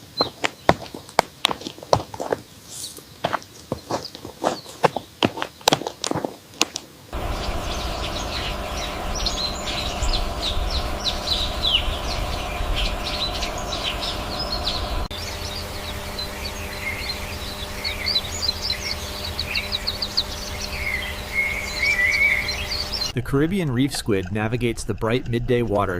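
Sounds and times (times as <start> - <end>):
small birds chirping and singing: 0.0 - 1.2, 2.2 - 5.8, 7.1 - 23.2
low outdoor rumble: 7.1 - 25.9.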